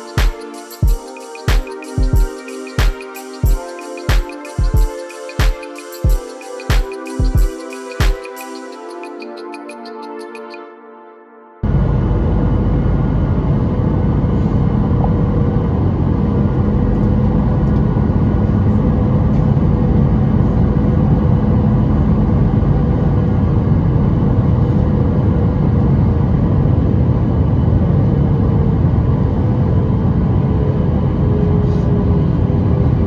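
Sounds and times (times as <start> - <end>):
airliner cabin rumble: 11.6 - 33.0.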